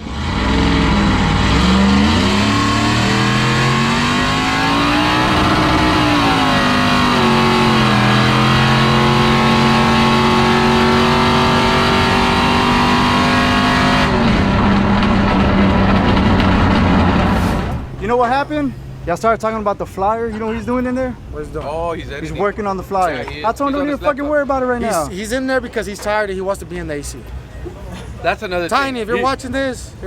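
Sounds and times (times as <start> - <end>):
car engine under load: 0.0 - 22.0.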